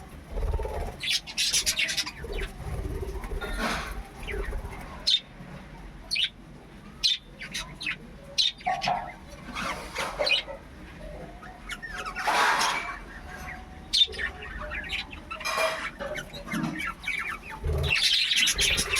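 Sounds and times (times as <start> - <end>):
budgerigars chirping: 16.2 - 18.9.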